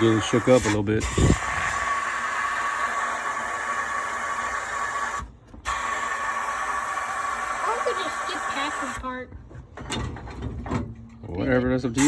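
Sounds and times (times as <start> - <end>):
sandblasting hiss: 0.0 - 9.0.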